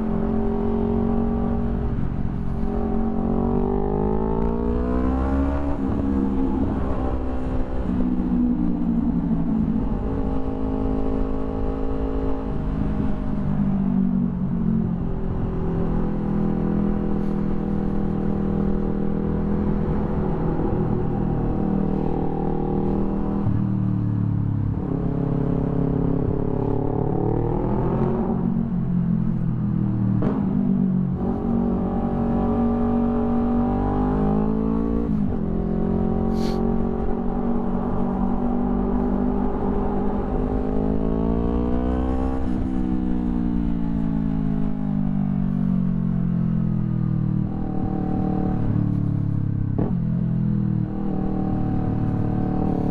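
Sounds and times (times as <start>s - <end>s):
motorcycle engine revving: 30.2s - 43.3s.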